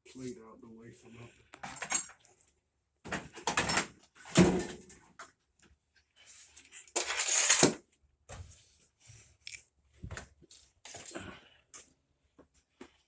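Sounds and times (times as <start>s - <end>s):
metal washers rattling and scraping: 6.9s - 7.7s.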